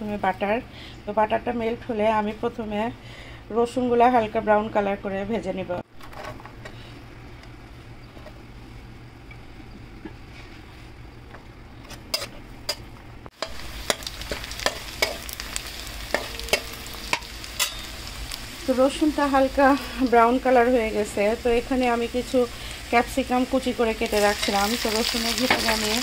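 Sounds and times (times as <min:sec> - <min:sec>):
metal spatula scraping a pan: 0:11.9 - 0:18.1
garlic sizzling in butter: 0:13.3 - 0:26.0.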